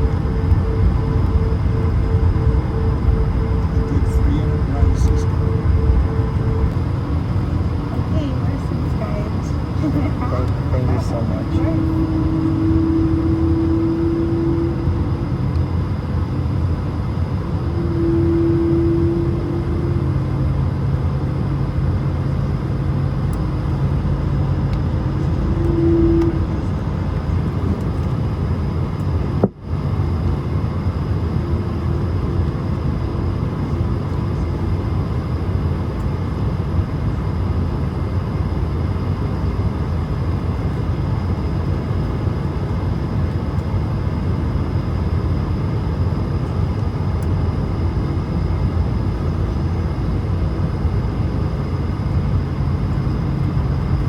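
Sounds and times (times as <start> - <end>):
faint hum: 0.0 - 54.0
jet cabin engine rumble: 0.0 - 54.0.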